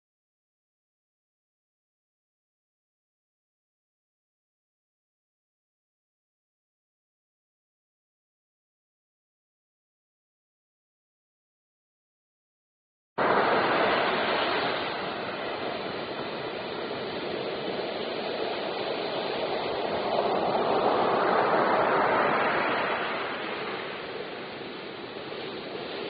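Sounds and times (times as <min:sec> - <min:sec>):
rushing water: 0:13.2 - 0:26.0.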